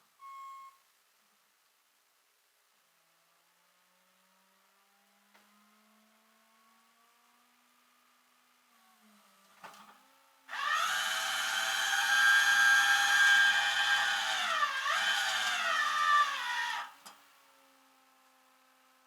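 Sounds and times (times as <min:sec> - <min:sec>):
power tool motor whining: 0:10.5 - 0:17.1.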